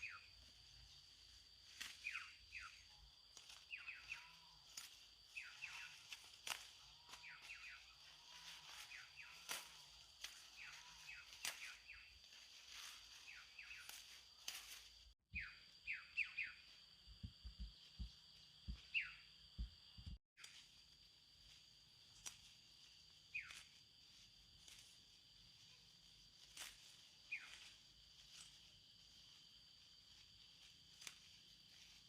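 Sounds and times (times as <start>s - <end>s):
small bird chirping: 1.7s - 14.4s, 15.3s - 20.6s, 23.2s - 23.8s, 27.2s - 28.7s
low thumps: 17.1s - 20.2s.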